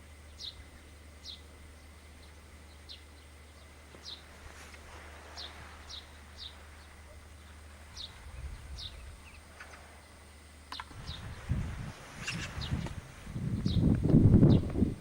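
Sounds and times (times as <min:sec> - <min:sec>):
birds chirping: 0:00.1 - 0:14.9.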